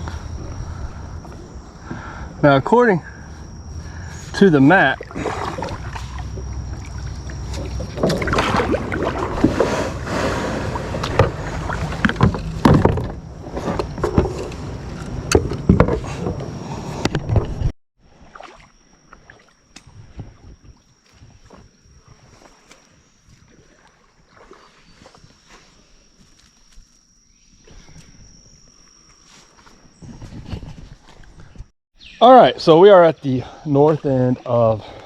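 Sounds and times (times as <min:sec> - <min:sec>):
faint water: 0:00.0 - 0:16.4, 0:17.2 - 0:31.5, 0:32.2 - 0:35.0
paddle splashing in water: 0:03.8 - 0:16.4, 0:17.4 - 0:20.6, 0:22.1 - 0:25.2
paddle knocking on kayak: 0:10.7 - 0:14.5.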